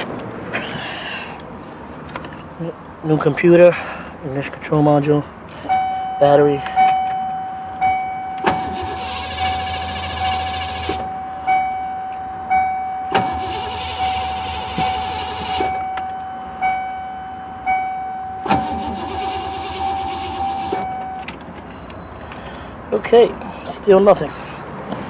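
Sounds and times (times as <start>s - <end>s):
warning chime dinging: 5.6s - 23.4s
starter cranking engine: 8.5s - 11.1s, 13.2s - 15.7s, 18.5s - 22.4s.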